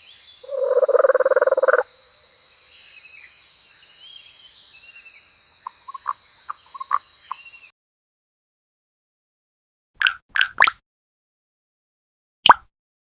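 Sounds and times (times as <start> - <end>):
high-pitched insect drone: 0.0 - 7.7
frog croaking: 0.4 - 2.1, 5.6 - 7.5
water plops and drips: 10.0 - 10.8, 12.4 - 12.7.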